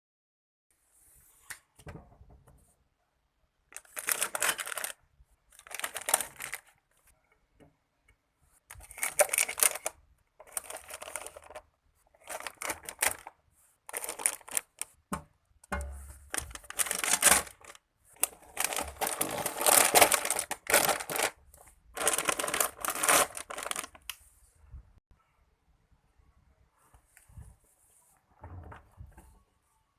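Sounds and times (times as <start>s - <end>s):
plastic packaging crinkling: 3.7s - 6.8s, 8.8s - 15.0s, 16.2s - 24.1s.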